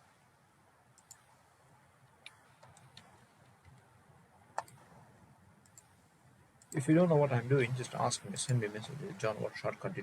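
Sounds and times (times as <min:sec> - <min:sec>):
computer mouse clicks: 0:01.0 - 0:01.4, 0:02.1 - 0:03.9, 0:04.5 - 0:04.9, 0:05.6 - 0:06.0.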